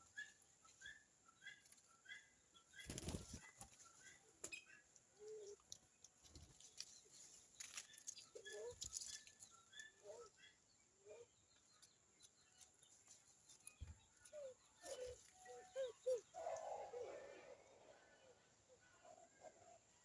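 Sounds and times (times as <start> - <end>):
bird wing flutters: 2.8 - 3.7.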